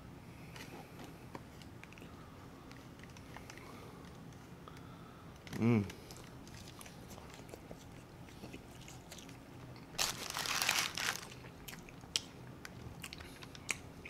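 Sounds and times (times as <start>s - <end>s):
chewing crunchy fries: 5.4s - 14.0s
crinkling: 9.0s - 11.9s.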